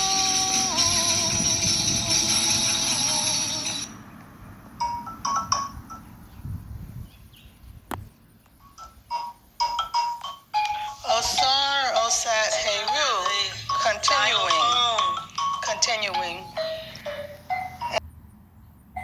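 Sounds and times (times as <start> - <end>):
held wavering note: 0.0 - 3.9
tambourine jingling: 0.0 - 4.0
xylophone single notes: 12.7 - 18.0.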